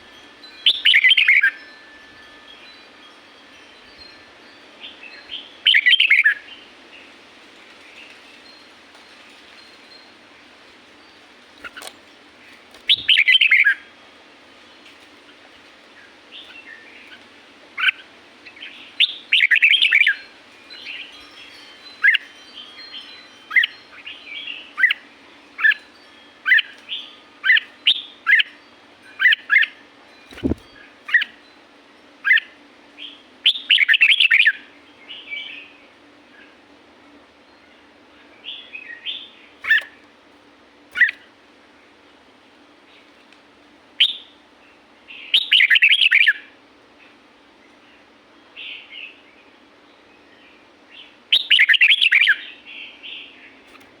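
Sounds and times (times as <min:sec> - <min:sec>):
faint steady hum: 0:00.0 - 0:54.0
bird singing whistled phrases: 0:00.7 - 0:01.6, 0:12.9 - 0:13.8, 0:19.0 - 0:20.2, 0:44.0 - 0:44.3, 0:45.4 - 0:46.4, 0:51.3 - 0:52.5
bird chattering: 0:41.0 - 0:41.2.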